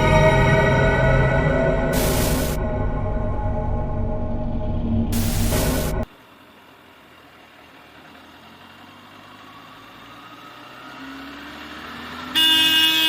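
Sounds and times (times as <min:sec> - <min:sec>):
road and wind noise: 0:04.6 - 0:13.0.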